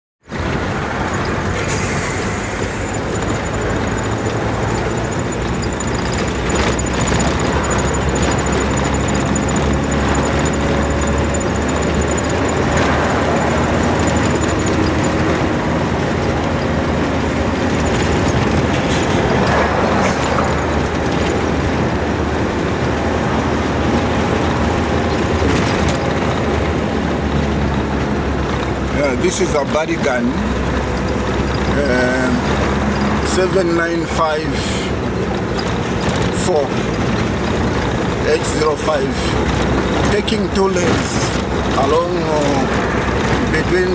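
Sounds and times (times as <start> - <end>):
road traffic engine and tyre noise: 0.2 - 43.9.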